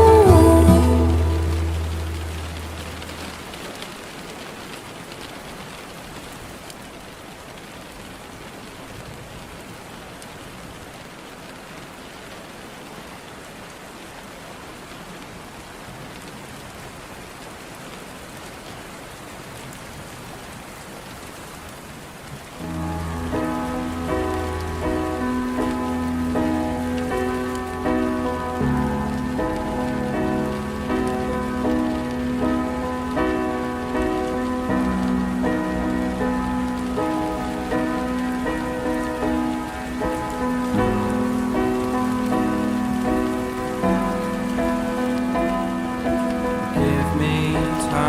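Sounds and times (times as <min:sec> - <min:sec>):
song: 0:00.0 - 0:03.4, 0:22.6 - 0:48.0
steady rain falling: 0:00.0 - 0:48.0.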